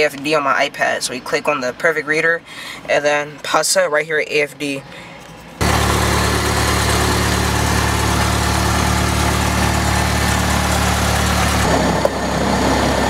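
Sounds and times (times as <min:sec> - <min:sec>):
propeller plane engine drone: 0:04.9 - 0:13.0.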